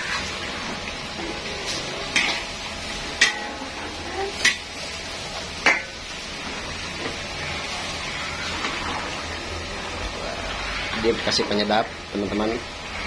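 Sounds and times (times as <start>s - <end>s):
metal ladle clanking against wok: 3.2s - 3.6s.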